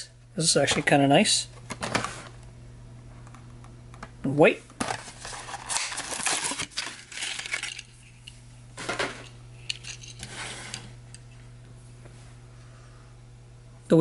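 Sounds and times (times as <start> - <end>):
crackling plastic packaging: 4.8 - 8.0.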